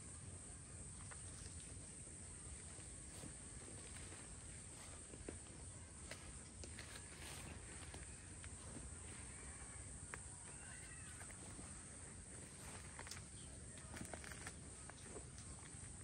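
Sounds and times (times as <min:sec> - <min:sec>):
faint animal calls: 0:09.0 - 0:12.0
light clicks and rustles: 0:12.6 - 0:16.0.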